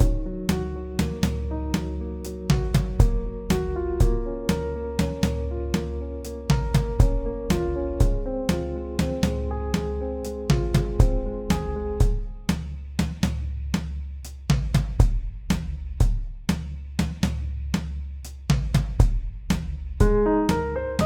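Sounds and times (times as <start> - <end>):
low bass line: 0.0 - 12.5
drum kit beat: 0.0 - 21.0.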